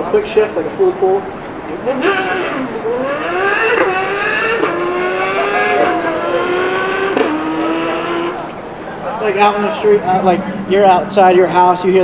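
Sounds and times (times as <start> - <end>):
man imitating motorbike engine: 1.8 - 8.6.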